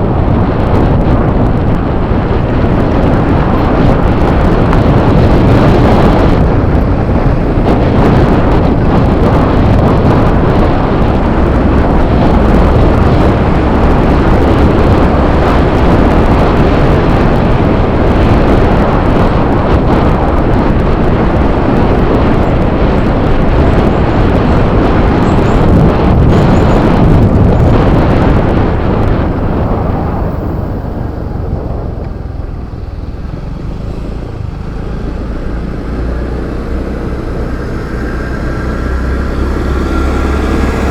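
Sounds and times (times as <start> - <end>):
scooter engine: 0.0 - 40.9
wind rushing on microphone: 0.0 - 40.9.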